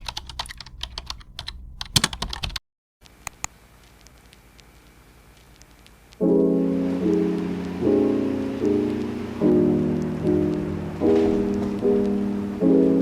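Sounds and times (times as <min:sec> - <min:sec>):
typing on computer keyboard: 0:00.0 - 0:02.6
faint hiss: 0:03.0 - 0:13.0
soft piano music: 0:06.2 - 0:13.0.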